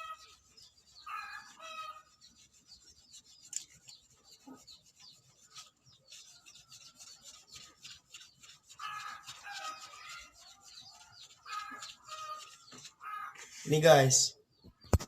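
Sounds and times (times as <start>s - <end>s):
pad rubbing metal casing: 0.0s - 13.3s
bird calling: 8.6s - 13.7s.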